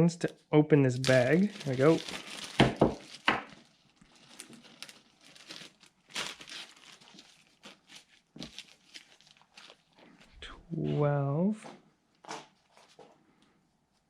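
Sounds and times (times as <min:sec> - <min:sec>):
plastic bag rustling: 0:00.9 - 0:10.4, 0:12.1 - 0:13.3.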